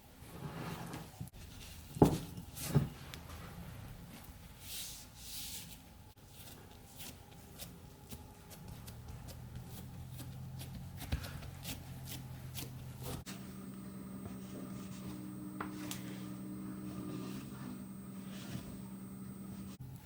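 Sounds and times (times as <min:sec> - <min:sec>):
low steady hum: 0:12.2 - 0:20.0.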